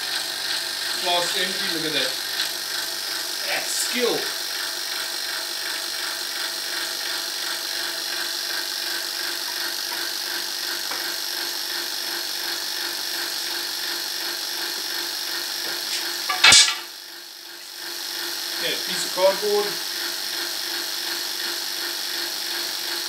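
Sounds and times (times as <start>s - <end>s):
hair dryer blowing: 0.0s - 16.4s.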